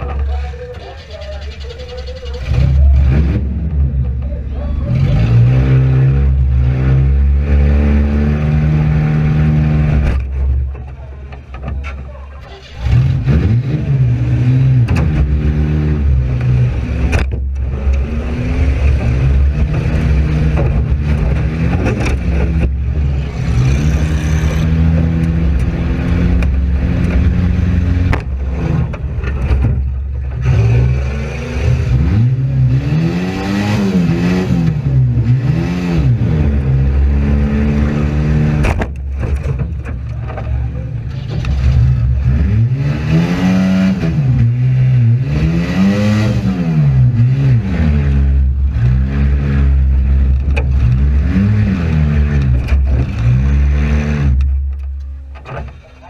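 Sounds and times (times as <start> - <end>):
car engine revving: 0.0 - 56.0
sharp knocks and bangs: 26.2 - 30.6, 38.5 - 40.5.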